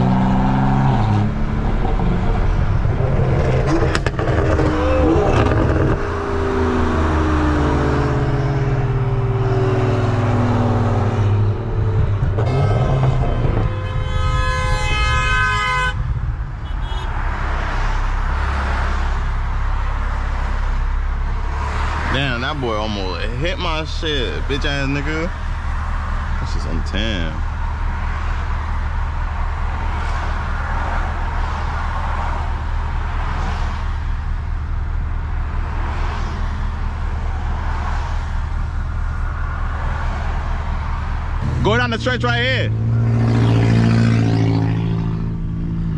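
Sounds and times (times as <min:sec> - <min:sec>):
car engine drone: 0:00.0 - 0:45.9
road noise: 0:00.0 - 0:45.9
car horn blaring: 0:12.4 - 0:17.4.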